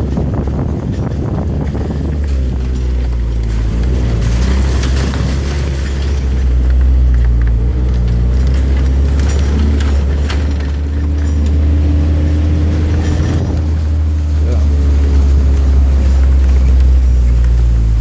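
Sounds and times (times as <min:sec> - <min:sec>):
engine rumbling: 0:00.0 - 0:18.0.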